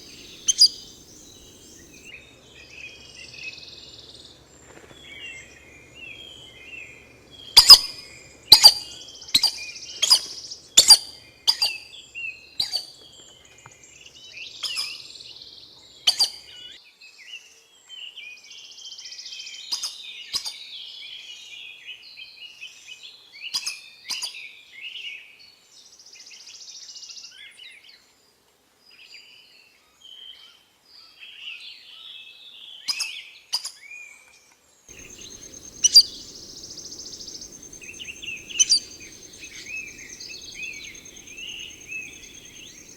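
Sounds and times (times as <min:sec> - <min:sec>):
sharp loud bird notes: 0:00.0 - 0:02.1, 0:34.9 - 0:42.9
soft bird chirps and twitters: 0:00.0 - 0:02.1, 0:34.9 - 0:42.9
wild birds calling: 0:00.0 - 0:02.1, 0:34.9 - 0:42.9.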